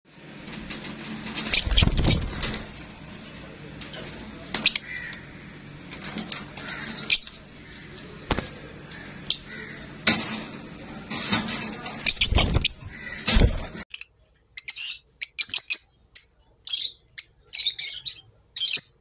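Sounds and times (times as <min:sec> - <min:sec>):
parrots squawking: 0:04.6 - 0:05.6, 0:06.4 - 0:08.0, 0:08.8 - 0:10.0, 0:12.0 - 0:19.0.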